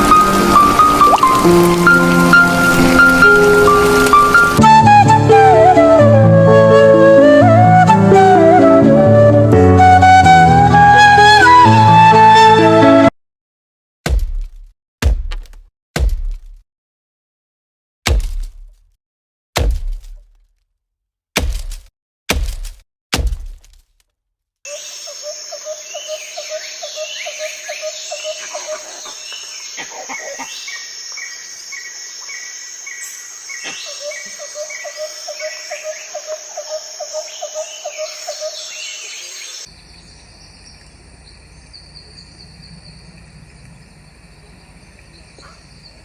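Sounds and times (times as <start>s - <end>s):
birds calling and chirping: 24.7s - 46.0s.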